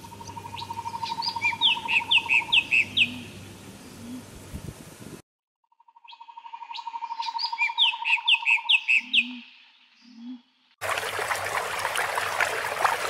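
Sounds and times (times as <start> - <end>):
birds trilling and chirping: 0.0 - 3.4
running water rushing: 10.8 - 13.0.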